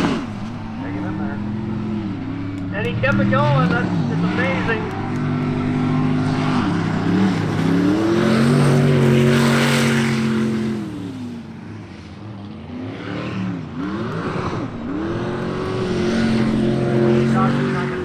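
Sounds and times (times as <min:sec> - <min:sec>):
racing boat engine revving: 0:00.0 - 0:18.0.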